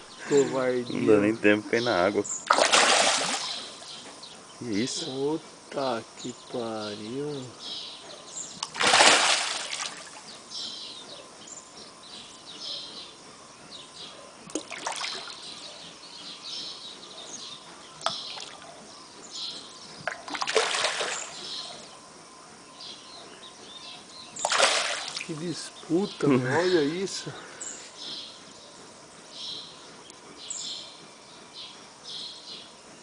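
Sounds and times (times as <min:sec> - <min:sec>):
small birds chirping: 0:00.0 - 0:33.0
fish splashing at water surface: 0:02.5 - 0:03.9, 0:08.6 - 0:10.2, 0:14.5 - 0:15.4, 0:20.0 - 0:21.4, 0:24.4 - 0:25.3.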